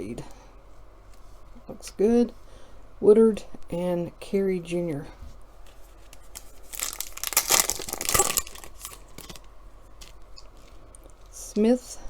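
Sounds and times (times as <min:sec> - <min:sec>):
plastic foil wrapper tearing: 0:06.1 - 0:10.2.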